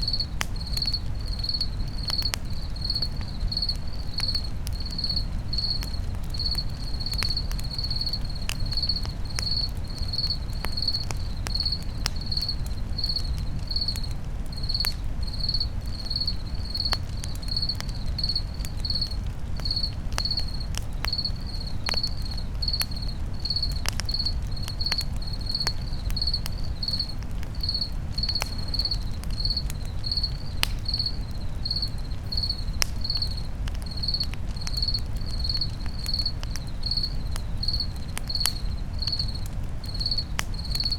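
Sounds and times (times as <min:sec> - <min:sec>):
campfire crackling: 0:00.0 - 0:40.9
cricket chirping: 0:00.0 - 0:40.9.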